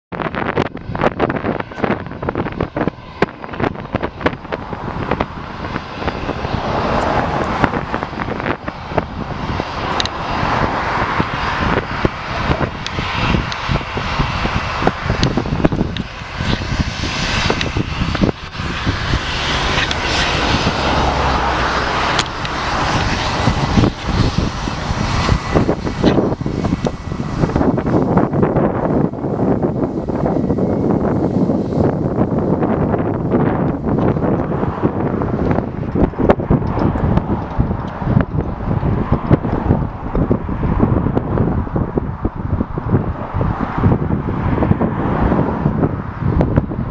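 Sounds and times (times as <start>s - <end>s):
jet engines running: 0.1s - 46.9s
wind buffeting on microphone: 0.1s - 46.9s.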